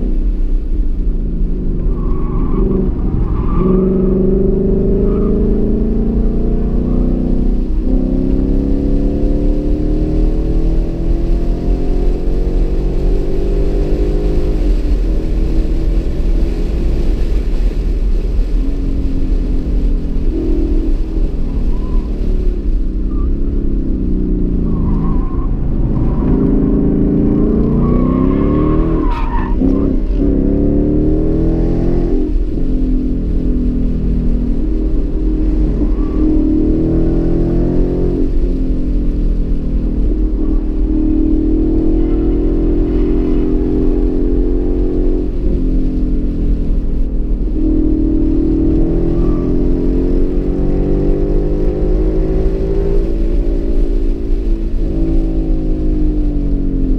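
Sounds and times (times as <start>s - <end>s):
car engine revving: 0.0s - 56.9s
tire squeal: 1.6s - 6.0s, 6.7s - 7.9s, 20.2s - 23.8s, 24.5s - 30.3s, 35.0s - 38.4s, 47.5s - 54.2s.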